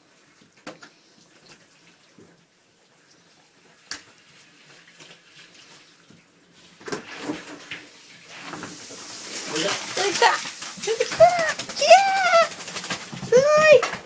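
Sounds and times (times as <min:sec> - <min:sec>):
water splashing: 0:08.3 - 0:14.0.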